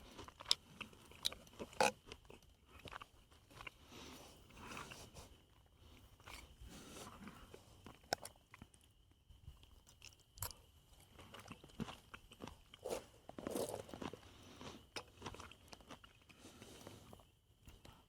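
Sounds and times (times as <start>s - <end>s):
chewing: 0.0s - 18.0s.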